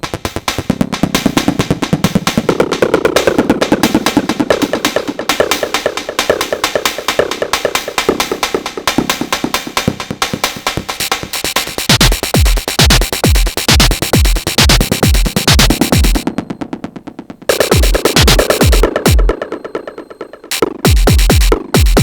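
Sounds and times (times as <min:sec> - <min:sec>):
deep punchy kick drum: 0:00.0 - 0:16.3, 0:17.5 - 0:19.4, 0:20.5 - 0:22.0
clicky drum machine percussion: 0:00.0 - 0:22.0.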